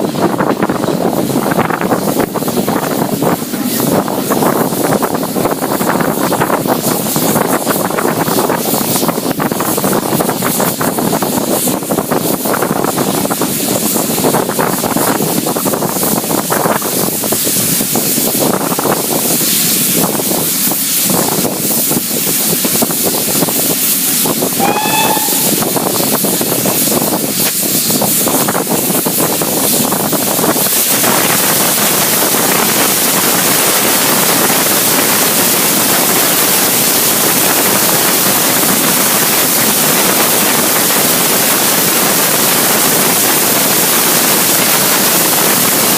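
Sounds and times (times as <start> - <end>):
rattling rail noise: 0.0 - 45.9
steam train hissing: 0.0 - 45.9
short high-pitched tone: 24.6 - 25.7.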